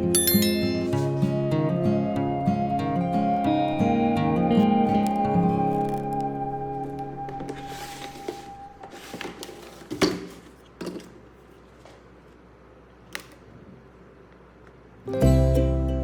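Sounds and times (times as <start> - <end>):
held musical tone: 0.0 - 8.9, 15.1 - 16.0.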